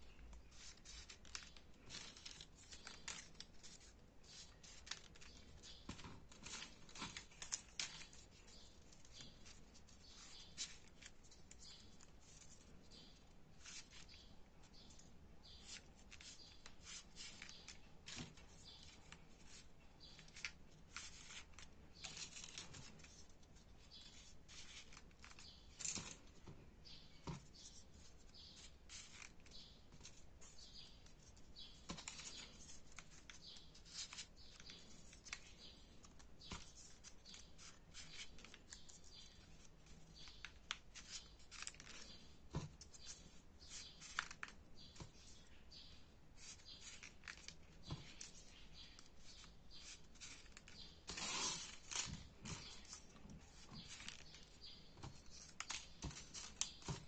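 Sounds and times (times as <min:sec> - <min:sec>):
sharp paper ticks: 0:00.1 - 0:12.8, 0:28.0 - 0:42.2, 0:46.4 - 0:57.0
paper rustling and crinkling: 0:00.1 - 0:57.0.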